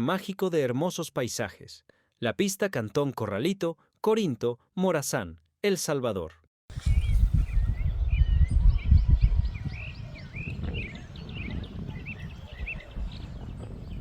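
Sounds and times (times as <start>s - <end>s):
birds chirping: 6.7s - 14.0s
wind rumble on microphone: 6.7s - 14.0s.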